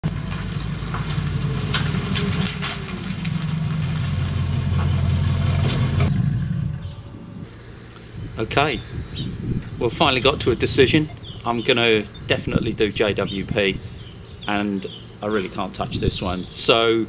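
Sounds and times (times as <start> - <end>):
car engine idling: 0.0 - 8.1.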